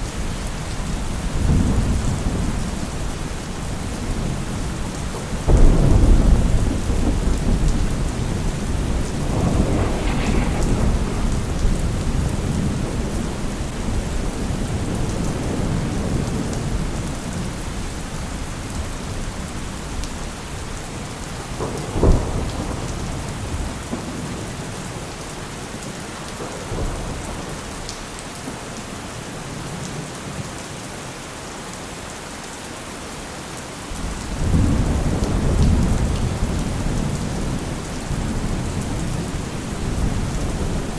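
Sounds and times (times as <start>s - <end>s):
steady rain: 0.0s - 40.9s
rolling thunder rumbles: 5.3s - 17.9s, 34.3s - 40.9s
sharp thunderclap: 5.5s - 16.4s.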